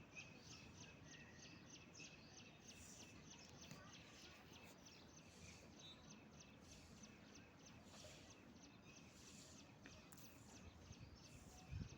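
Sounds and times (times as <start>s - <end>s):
outdoor background noise: 0.0s - 11.9s.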